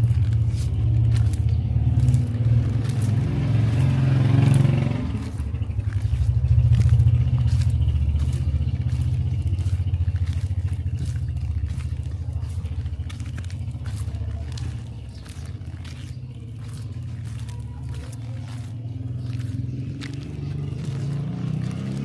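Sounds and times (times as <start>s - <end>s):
low engine rumble: 0.0s - 22.0s
vehicle passing close: 0.0s - 22.0s.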